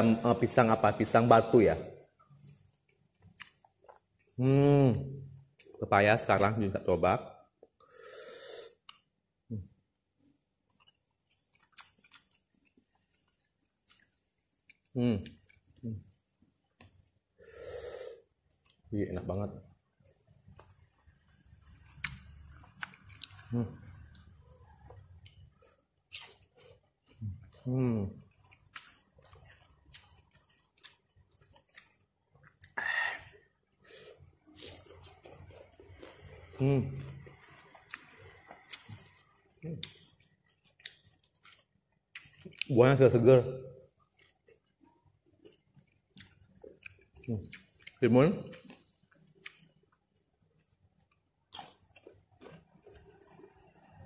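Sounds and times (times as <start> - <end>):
person chewing: 2.2 - 4.5, 7.6 - 9.2, 9.9 - 18.9, 19.7 - 42.8, 43.8 - 54.0.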